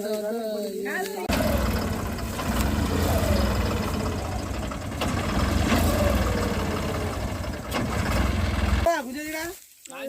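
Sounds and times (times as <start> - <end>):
diesel engine droning: 1.3 - 8.9.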